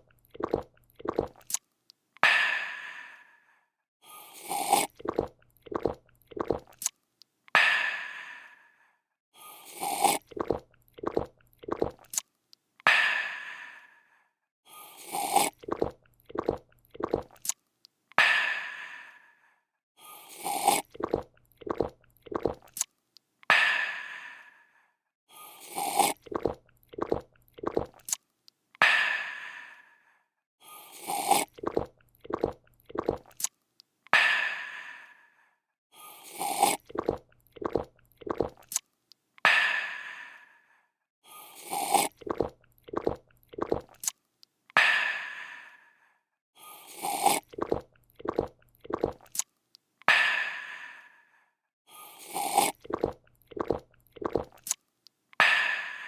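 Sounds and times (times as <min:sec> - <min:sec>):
person gulping a drink: 0:00.0 - 0:01.6, 0:04.4 - 0:06.9, 0:09.7 - 0:12.2, 0:15.0 - 0:17.6, 0:20.4 - 0:22.9, 0:25.7 - 0:28.2, 0:31.0 - 0:33.6, 0:36.3 - 0:38.9, 0:41.6 - 0:44.2, 0:47.0 - 0:49.5, 0:52.2 - 0:54.8.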